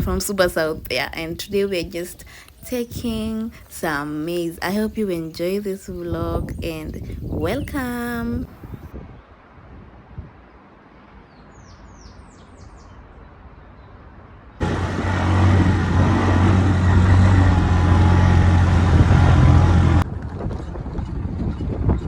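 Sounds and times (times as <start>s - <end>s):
loud steady motor hum: 14.6s - 20.0s
quiet rough noise: 14.6s - 20.0s.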